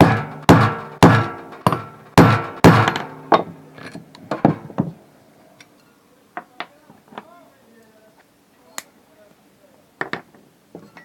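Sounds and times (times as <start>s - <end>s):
hammer blows on metal: 0.0s - 3.6s.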